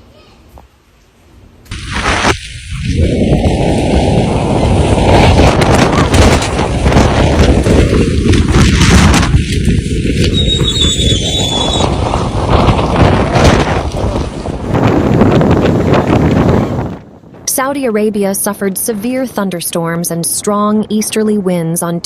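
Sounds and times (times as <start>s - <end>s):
wind rushing on microphone: 1.7s - 17.6s
sharp crackling knocks: 4.9s - 11.1s.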